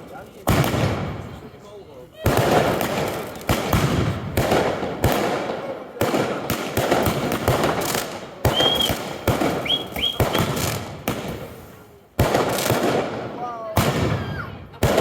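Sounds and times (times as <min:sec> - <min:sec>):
fireworks bangs and crackling: 0:00.0 - 0:15.0
fireworks whistles: 0:07.0 - 0:12.8.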